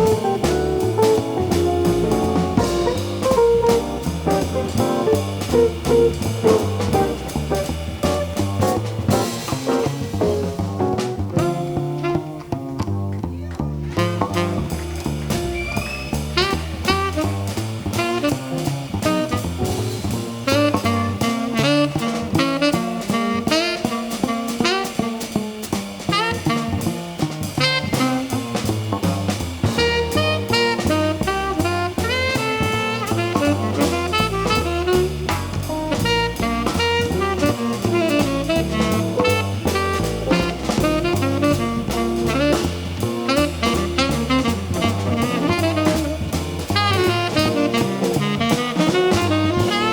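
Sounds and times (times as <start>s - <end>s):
lead melody with sliding notes: 0.0s - 12.3s, 29.8s - 49.9s
bass line: 0.0s - 24.2s, 26.3s - 49.9s
drum kit with busy cymbals: 0.0s - 49.9s.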